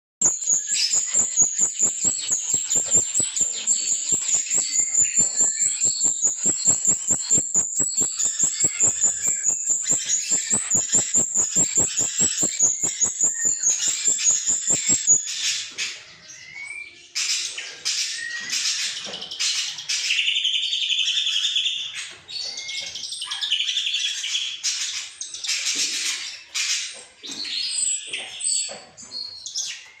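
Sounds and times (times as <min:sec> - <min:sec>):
bird chirps and whistles: 0:00.2 - 0:15.6
bird song trill: 0:00.2 - 0:30.0.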